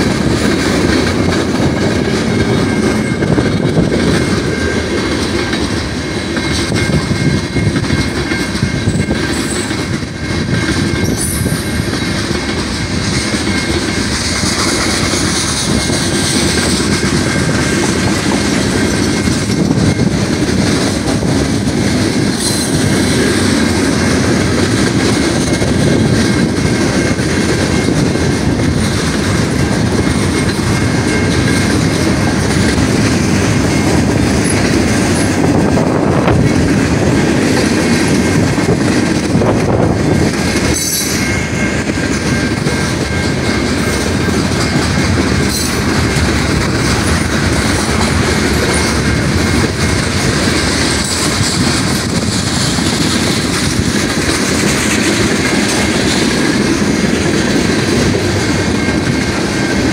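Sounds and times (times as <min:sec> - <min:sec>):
wheels clacking over rail joints: 0:00.0 - 0:59.9
high wheel squeal: 0:06.0 - 0:12.2.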